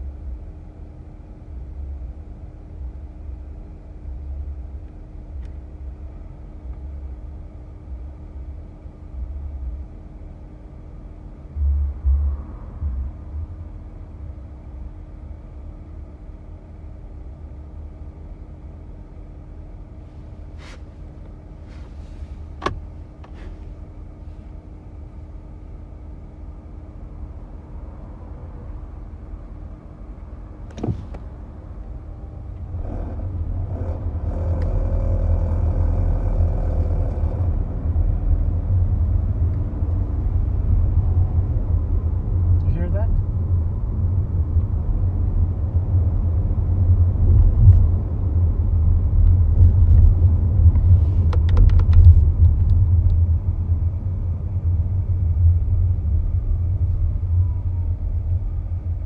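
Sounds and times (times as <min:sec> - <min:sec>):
car cabin hum: 0:00.0 - 0:59.0
car engine accelerating: 0:30.6 - 0:59.0.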